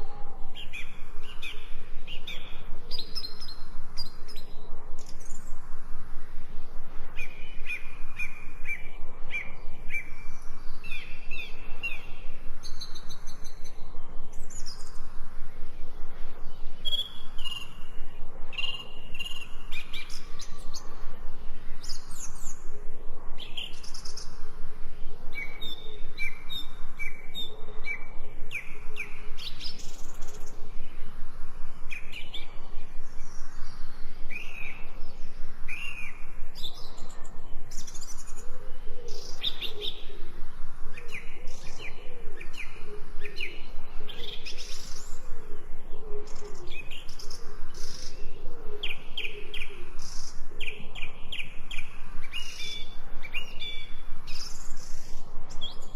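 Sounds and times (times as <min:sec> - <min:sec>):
songbirds chirping and singing: 0:00.0 - 0:05.7, 0:06.4 - 0:55.9
steady pulsing background: 0:00.0 - 0:55.9.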